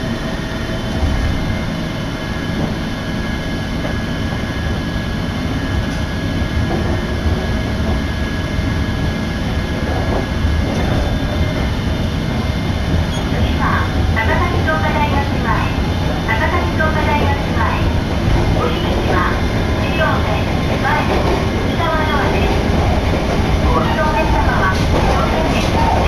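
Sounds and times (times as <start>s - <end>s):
train wheels rumbling: 0.0s - 26.0s.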